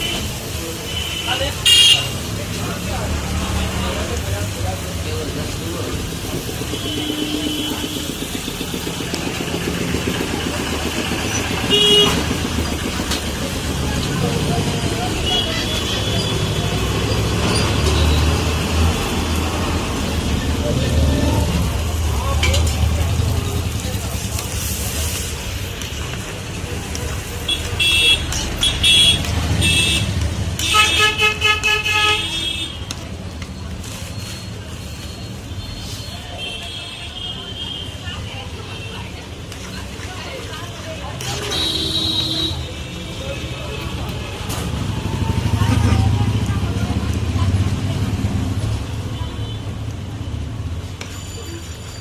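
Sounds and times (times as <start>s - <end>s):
vehicle horns honking: 0.0s - 2.2s, 6.7s - 8.2s, 11.6s - 12.3s, 27.5s - 32.8s, 41.4s - 42.8s
street traffic rumbling: 0.0s - 52.0s
loud vehicle horn honk: 1.0s - 2.2s, 6.7s - 8.1s, 11.6s - 12.3s, 41.4s - 42.7s.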